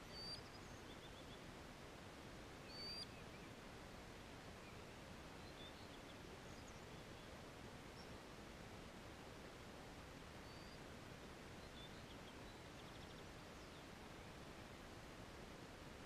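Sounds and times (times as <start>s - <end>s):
faint high bird chirps: 0.0s - 1.5s, 2.6s - 3.5s, 4.6s - 7.3s, 10.4s - 10.8s, 11.6s - 14.4s
quiet steady hiss: 0.0s - 16.0s.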